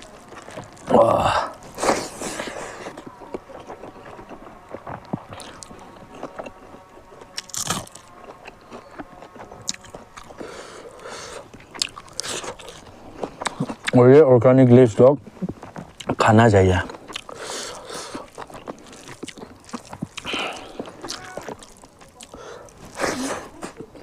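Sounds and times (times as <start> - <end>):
chewing and biting: 0.0 - 24.0
wet mouth clicks and smacks: 17.0 - 22.4.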